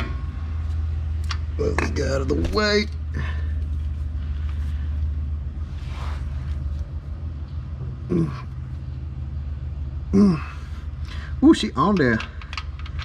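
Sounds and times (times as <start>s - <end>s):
steady low hum: 0.0s - 13.0s
person grunting: 8.1s - 8.5s, 10.1s - 10.7s.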